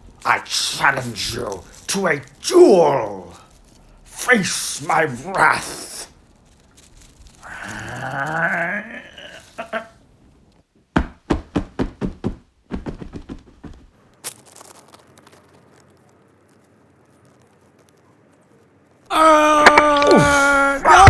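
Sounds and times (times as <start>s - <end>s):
person yelling: 0.3s - 3.3s, 4.2s - 6.0s, 19.1s - 21.0s
hard knocks and thuds: 11.0s - 13.9s.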